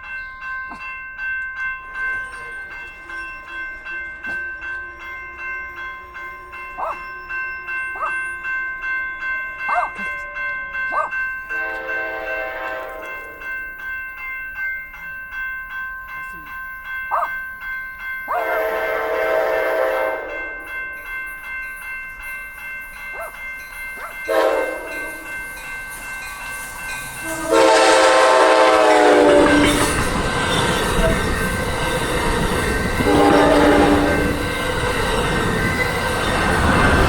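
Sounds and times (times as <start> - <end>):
locomotive air horn blasts: 11.6 - 13.1, 18.4 - 20.4, 24.3 - 25.1, 27.2 - 29.9, 33.0 - 34.4
train rumbling on rails: 18.2 - 37.0.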